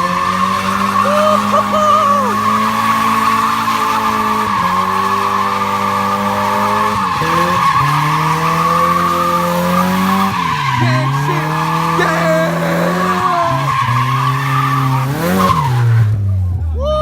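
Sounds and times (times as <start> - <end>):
tyres squealing: 0.0 - 16.1
car engine revving high: 0.0 - 16.4.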